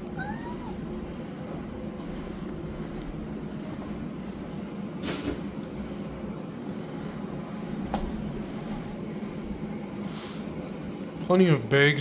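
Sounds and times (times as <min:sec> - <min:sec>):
steady low rumble: 0:00.0 - 0:11.2.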